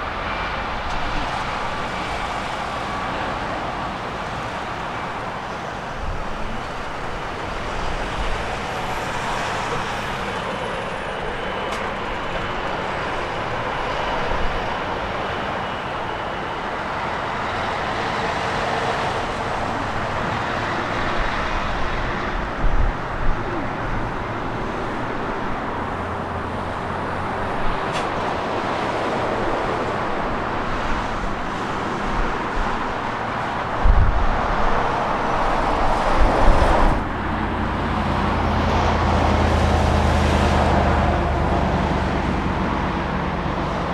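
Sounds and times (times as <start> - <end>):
jet engine roar: 0.0 - 43.9
wind thumps on microphone: 33.6 - 37.4.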